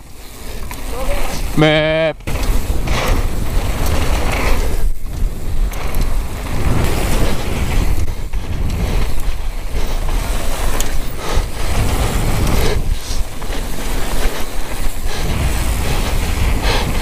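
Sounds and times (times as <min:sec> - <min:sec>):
mountain bike tyres rumbling and rattling: 0:00.0 - 0:17.0.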